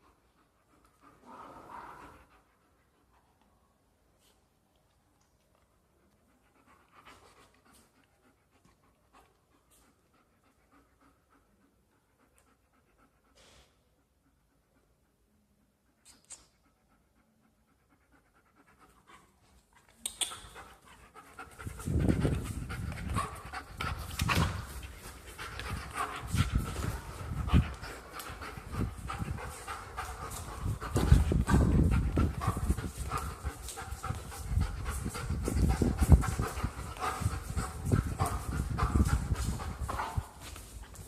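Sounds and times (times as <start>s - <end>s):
dog panting: 5.7s - 41.0s.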